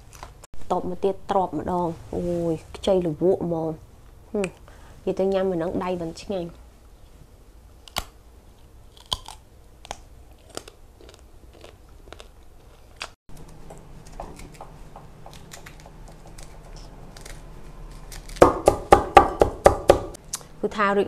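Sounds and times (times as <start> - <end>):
crunching raw vegetable: 7.8 - 18.9
loud rapid knocks: 18.4 - 20.2.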